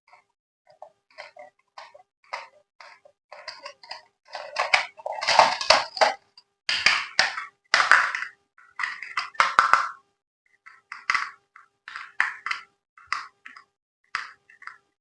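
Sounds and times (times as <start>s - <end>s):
packaging rustling and crinkling: 3.4s - 6.2s.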